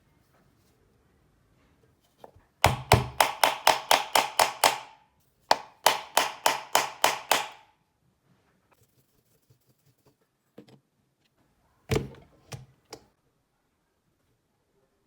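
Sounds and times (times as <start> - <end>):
hammer striking metal: 5.5 - 7.6.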